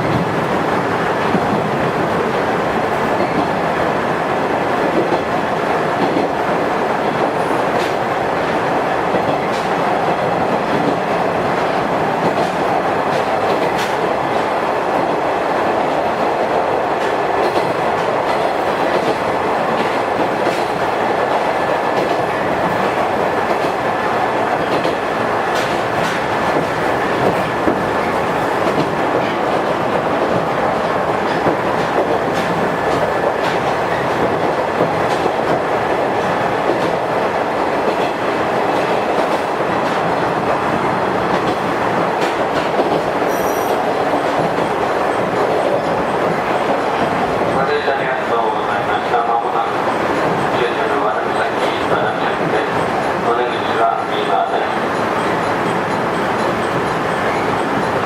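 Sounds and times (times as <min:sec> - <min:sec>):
electric train running: 0:48.3 - 0:58.0.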